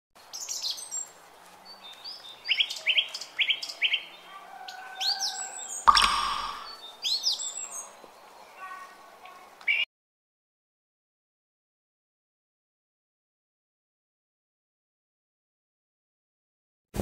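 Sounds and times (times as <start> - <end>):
small birds chirping: 0.2 - 9.9.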